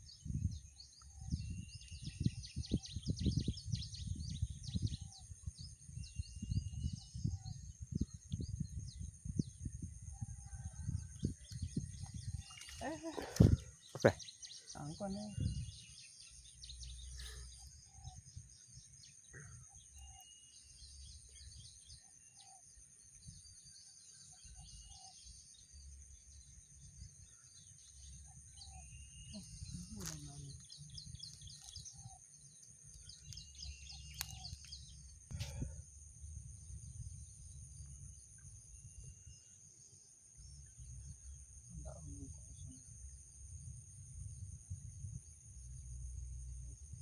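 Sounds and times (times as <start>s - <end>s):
low wind rumble: 0.0s - 19.0s, 28.0s - 39.4s, 40.5s - 47.0s
insect drone: 0.0s - 47.0s.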